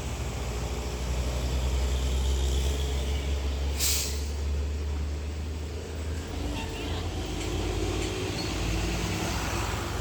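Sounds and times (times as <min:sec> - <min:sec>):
diesel truck rumbling: 0:00.0 - 0:10.0
air brake hiss: 0:03.7 - 0:04.4.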